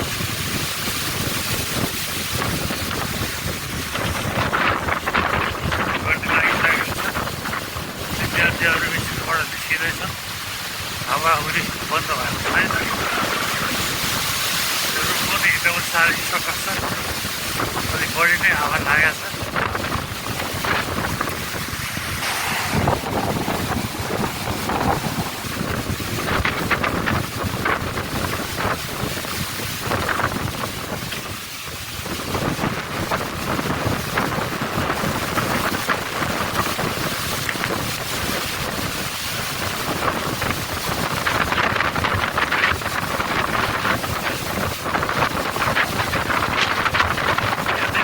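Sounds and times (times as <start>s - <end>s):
gusty wind buffeting microphone: 0.0s - 48.0s.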